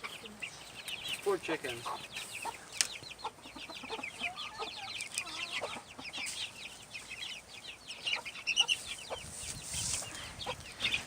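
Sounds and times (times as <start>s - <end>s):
baby chicks peeping: 0.0s - 11.0s.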